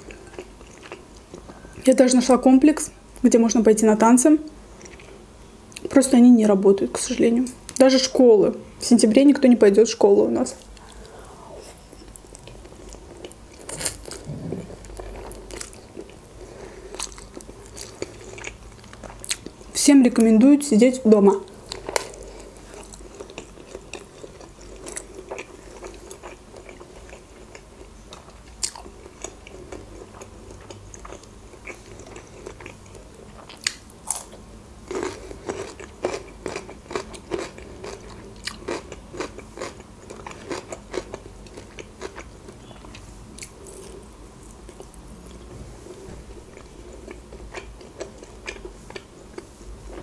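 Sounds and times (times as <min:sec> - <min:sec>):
chewing with wet mouth clicks: 0:00.1 - 0:01.6, 0:16.9 - 0:19.6, 0:21.5 - 0:44.0, 0:46.5 - 0:49.5.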